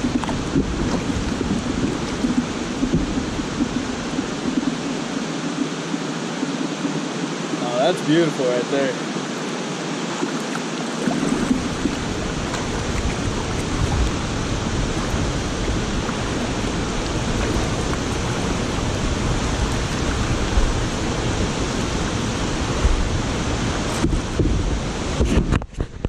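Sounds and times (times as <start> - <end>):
deep rumble: 0.0 - 5.2, 11.0 - 25.5
waterfall roaring: 0.0 - 25.5.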